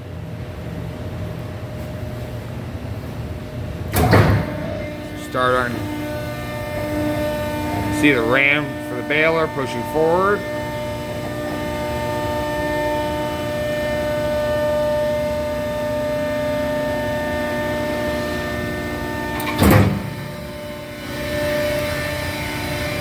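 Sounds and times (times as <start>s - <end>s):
hydraulic power unit humming: 0.0s - 23.0s
loud metal clank: 3.9s - 5.1s, 19.4s - 20.5s.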